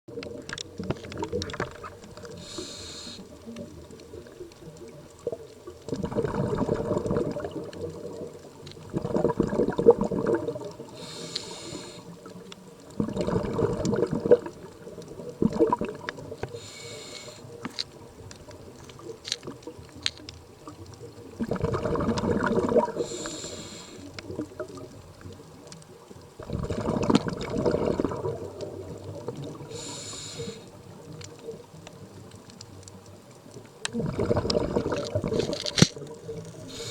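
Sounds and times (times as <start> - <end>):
exhaled bubbles rumbling: 0.1 - 16.9, 17.5 - 36.9
hissing inhalations: 2.2 - 3.4, 10.9 - 12.2, 16.5 - 17.6, 23.0 - 24.2, 29.7 - 30.8, 36.6 - 36.9.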